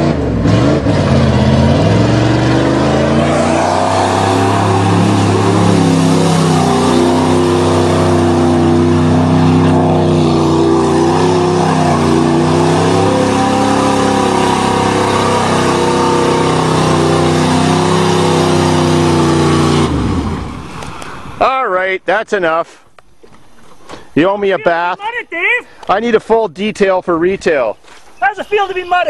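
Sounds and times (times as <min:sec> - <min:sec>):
truck engine revving high: 0:00.0 - 0:21.4.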